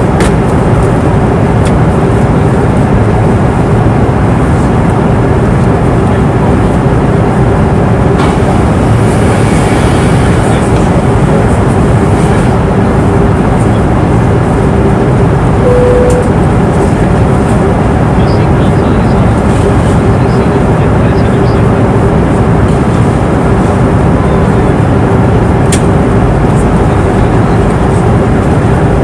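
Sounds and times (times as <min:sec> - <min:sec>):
airliner cabin rushing drone: 0:00.0 - 0:29.0
faint steady hum: 0:15.6 - 0:16.6.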